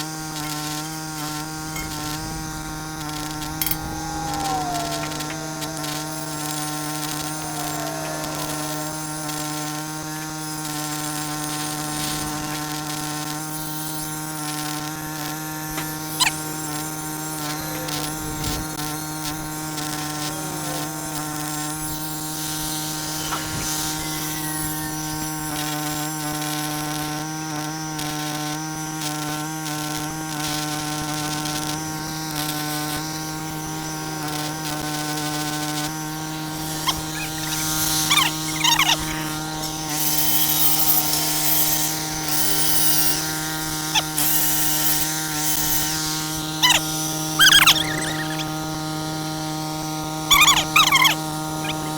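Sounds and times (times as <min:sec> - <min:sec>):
machine hum: 0:00.0 - 0:13.3
welding crackle: 0:36.6 - 0:46.6.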